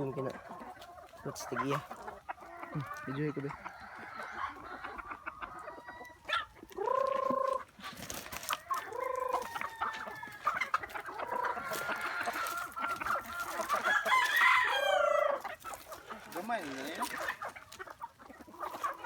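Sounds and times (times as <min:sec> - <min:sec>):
chicken drawn-out calls: 0:00.0 - 0:19.0
chickens clucking: 0:00.0 - 0:19.0.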